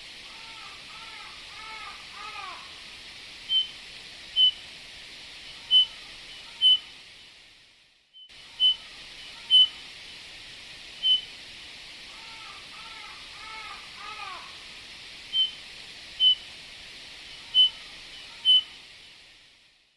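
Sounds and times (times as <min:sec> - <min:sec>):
softer lower bird calls: 0:00.3 - 0:02.7, 0:03.5 - 0:03.8, 0:04.4 - 0:04.6, 0:05.5 - 0:06.9, 0:08.2 - 0:09.8, 0:11.0 - 0:11.3, 0:12.1 - 0:14.6, 0:15.3 - 0:15.6, 0:16.2 - 0:16.4, 0:17.3 - 0:18.8
bird whistling calls: 0:03.5 - 0:03.8, 0:04.4 - 0:04.6, 0:05.6 - 0:06.9, 0:08.5 - 0:09.8, 0:11.0 - 0:11.3, 0:15.3 - 0:15.6, 0:16.2 - 0:16.4, 0:17.4 - 0:18.8.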